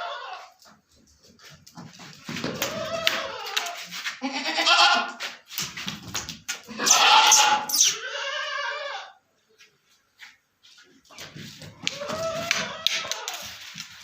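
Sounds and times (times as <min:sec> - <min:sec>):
goats bleating: 0:02.6 - 0:05.2, 0:06.7 - 0:09.2, 0:11.9 - 0:13.6.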